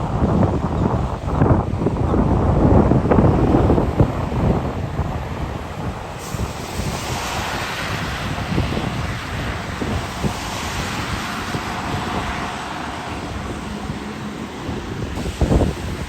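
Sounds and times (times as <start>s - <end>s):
trucks passing on a road: 0.0s - 16.0s
wind buffeting microphone: 0.0s - 16.0s.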